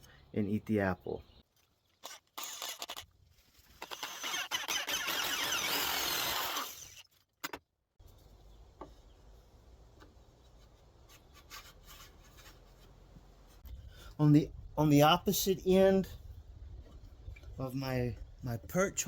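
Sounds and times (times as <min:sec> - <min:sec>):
power drill whining through wood: 0:02.0 - 0:03.0, 0:03.8 - 0:07.0.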